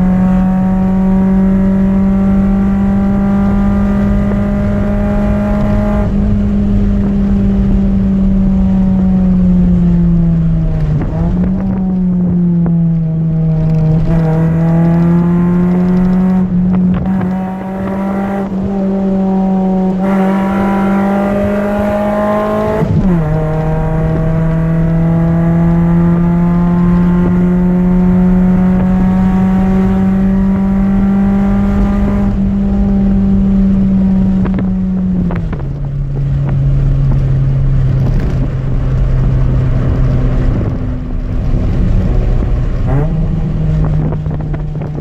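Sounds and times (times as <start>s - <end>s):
car engine accelerating: 0.0s - 45.0s.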